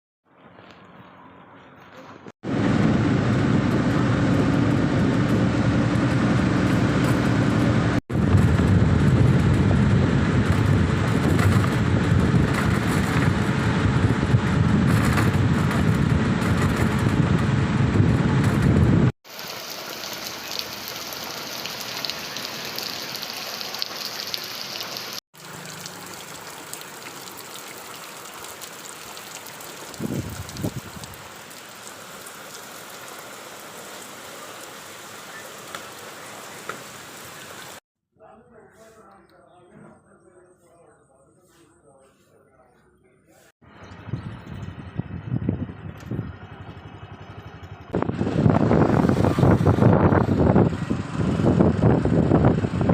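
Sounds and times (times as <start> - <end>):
heavy low rumble: 2.5 - 19.1, 43.7 - 52.9
rain falling: 19.3 - 37.8.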